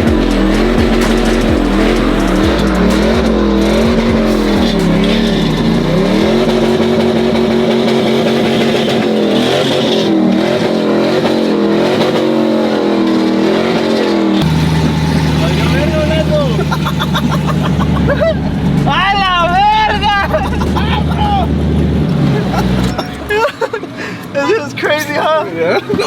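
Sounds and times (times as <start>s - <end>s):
tire hiss: 0.0s - 9.1s
truck engine revving high: 0.0s - 23.9s.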